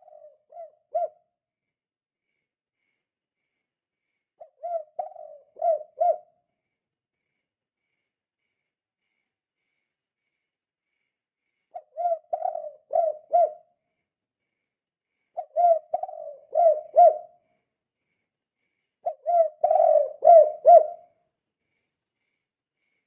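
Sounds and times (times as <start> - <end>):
dove cooing: 0.0 - 1.2, 4.4 - 6.3, 11.7 - 13.7, 15.4 - 17.4, 19.0 - 21.1.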